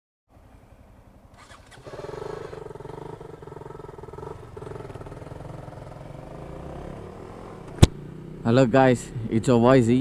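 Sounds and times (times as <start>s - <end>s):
motorcycle engine rumble: 0.3s - 10.0s.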